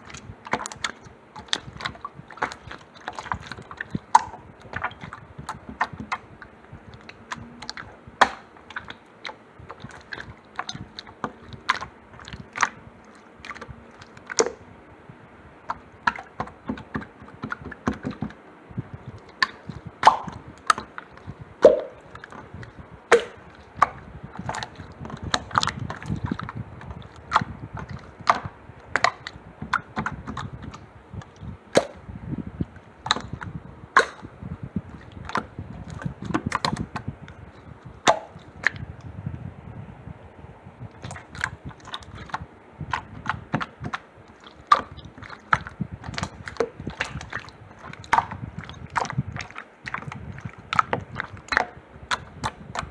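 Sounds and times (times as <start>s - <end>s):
slime squished by hand: 19.2s - 32.0s, 33.0s - 37.1s, 41.0s - 52.9s.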